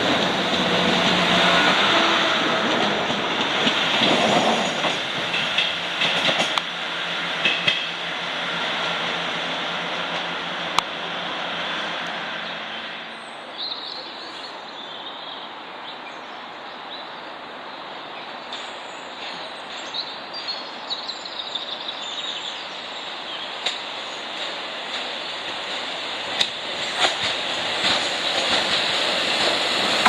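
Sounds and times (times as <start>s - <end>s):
train wheels clattering: 0.0s - 8.0s, 23.6s - 30.0s.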